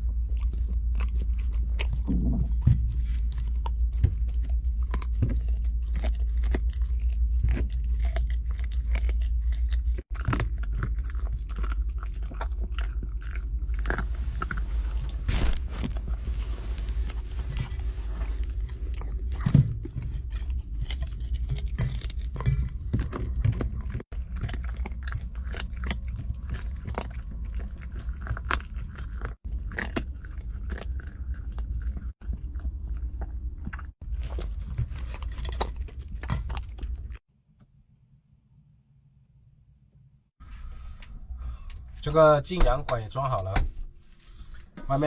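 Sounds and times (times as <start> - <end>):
steady low hum: 0.0 - 45.0
dog crunching bones: 0.1 - 15.9, 17.5 - 37.2.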